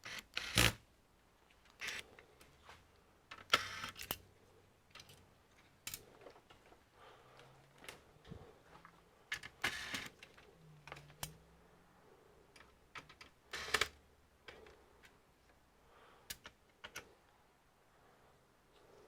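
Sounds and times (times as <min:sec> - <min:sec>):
light clicks of small parts: 0:04.9 - 0:08.1, 0:16.2 - 0:17.4.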